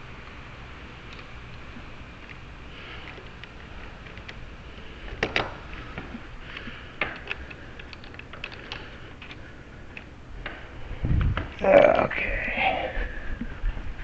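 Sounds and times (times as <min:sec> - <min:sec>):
sharp clicks: 0:06.5 - 0:10.6.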